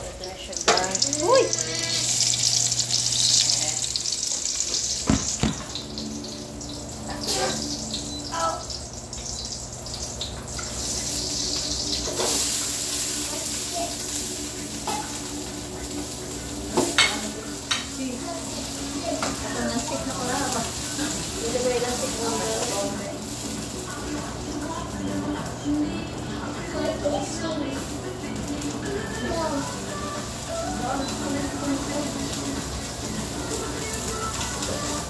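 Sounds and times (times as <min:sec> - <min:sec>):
food sizzling in a pot: 0:00.0 - 0:35.0.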